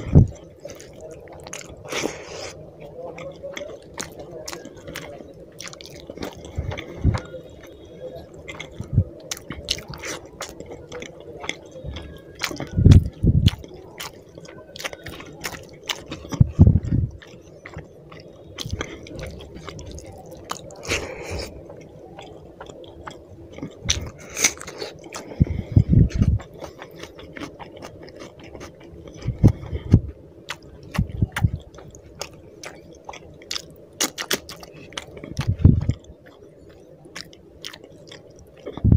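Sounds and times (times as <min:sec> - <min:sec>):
chewing and wet mouth sounds: 0:00.0 - 0:38.9
low thumps: 0:16.4 - 0:17.2.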